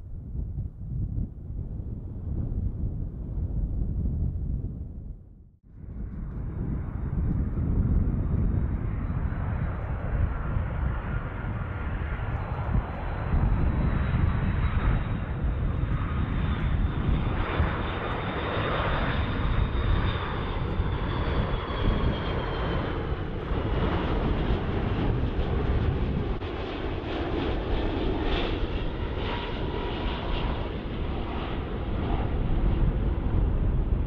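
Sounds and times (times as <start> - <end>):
jet engines running: 5.7 - 34.0.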